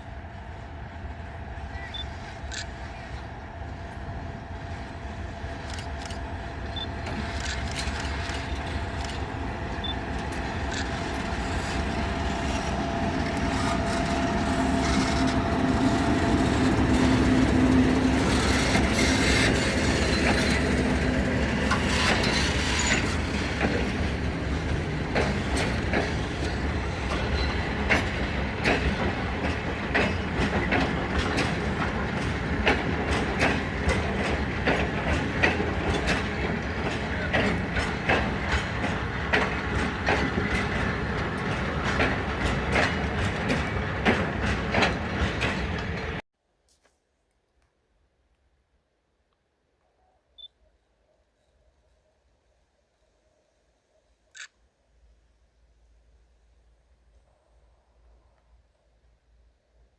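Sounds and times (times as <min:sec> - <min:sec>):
locomotive humming: 0:00.0 - 0:46.2
train wheels clacking on rail joints: 0:01.1 - 0:46.2.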